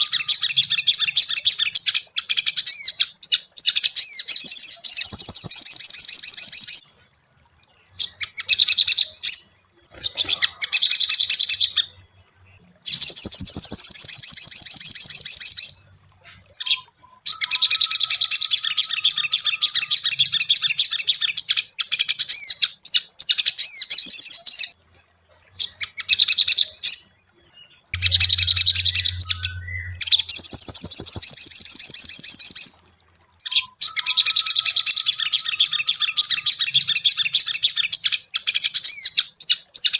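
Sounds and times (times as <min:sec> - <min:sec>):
brief low hum: 0:27.9 - 0:31.2.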